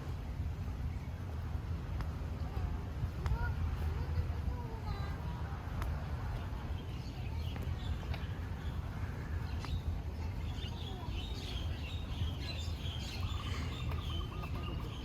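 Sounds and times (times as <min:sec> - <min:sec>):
steady low rumble: 0:00.0 - 0:15.0
birds chirping: 0:06.4 - 0:15.0.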